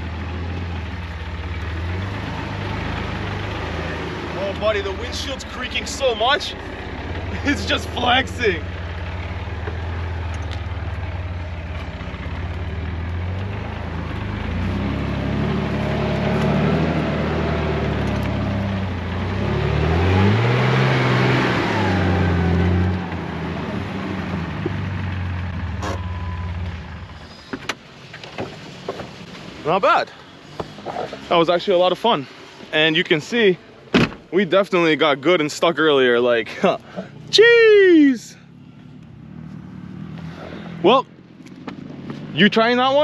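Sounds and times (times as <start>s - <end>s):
car engine revving: 0.0s - 26.1s.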